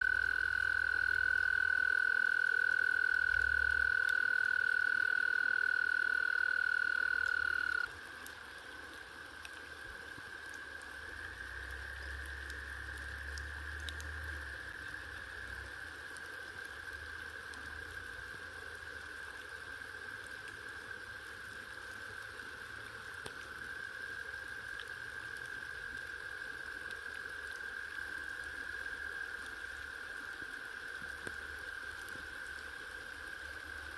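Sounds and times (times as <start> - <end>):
loud frog trill: 0.0 - 7.9
chorus of trilling frogs: 0.0 - 33.9.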